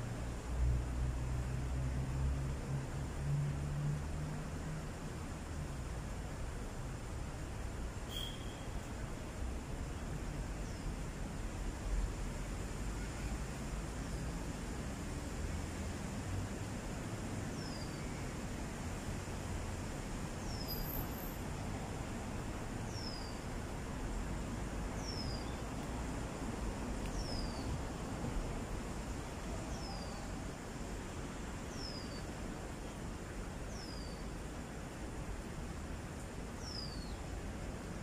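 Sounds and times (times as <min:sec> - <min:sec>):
outdoor hiss: 0:00.0 - 0:38.0
bird whistle falling: 0:08.1 - 0:08.7.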